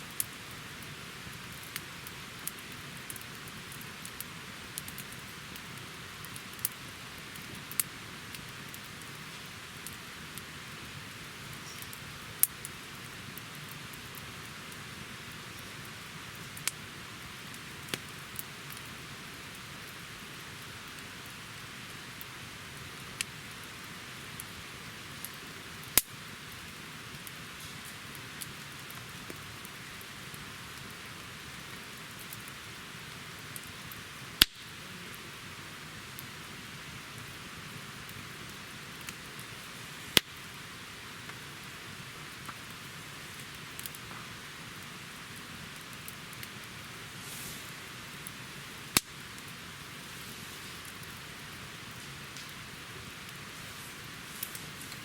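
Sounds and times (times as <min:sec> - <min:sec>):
campfire hissing and crackling: 0:00.0 - 0:55.0
loud fire pops: 0:22.8 - 0:35.2, 0:37.1 - 0:55.0.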